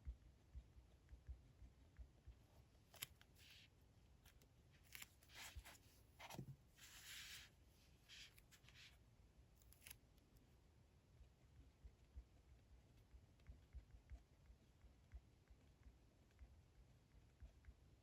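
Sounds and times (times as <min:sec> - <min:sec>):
paper rustling: 0:04.8 - 0:08.9.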